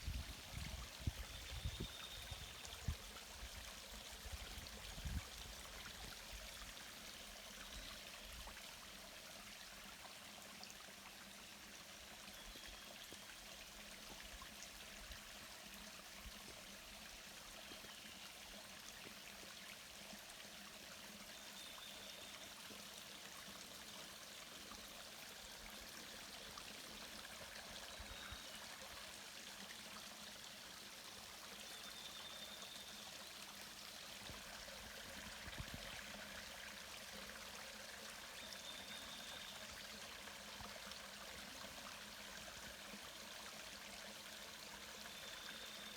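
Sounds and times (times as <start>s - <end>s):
stream flowing over rocks: 18.2s - 45.9s.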